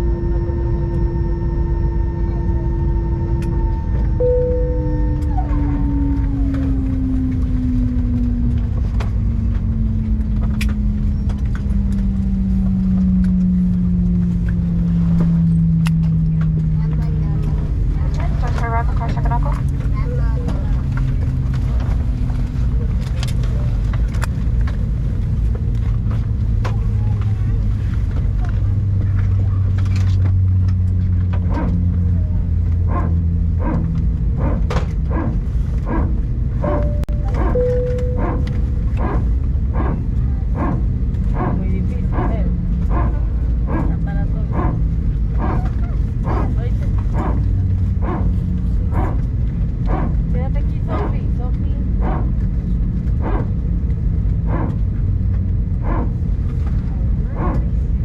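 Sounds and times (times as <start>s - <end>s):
jet engine winding down: 0.0s - 18.6s, 32.6s - 48.4s
airplane cabin drone: 0.0s - 58.0s
indistinct passenger voices: 0.0s - 58.0s.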